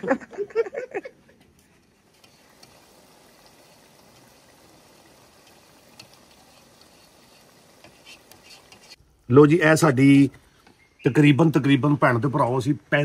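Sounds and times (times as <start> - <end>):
leaves sizzling in oil: 2.0 - 9.0.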